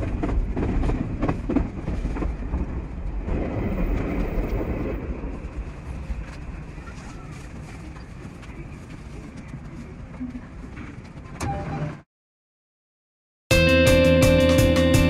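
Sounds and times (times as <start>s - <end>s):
train wheels rumbling: 0.0s - 11.4s.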